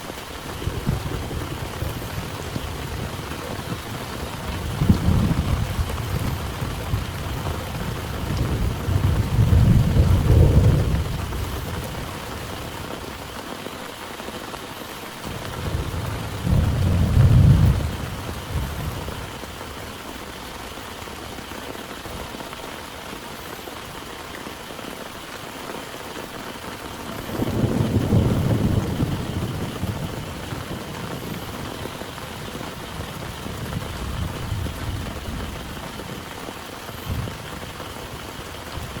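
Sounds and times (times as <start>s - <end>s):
heavy rain: 0.0s - 39.0s
low thunder rolling: 0.5s - 13.3s, 15.3s - 20.6s, 27.1s - 36.3s.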